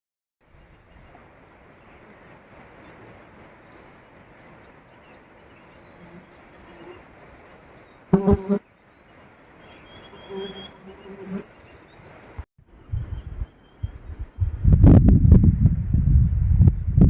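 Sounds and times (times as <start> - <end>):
small birds chirping: 0.4 - 14.6
faint outdoor hiss: 0.4 - 14.9.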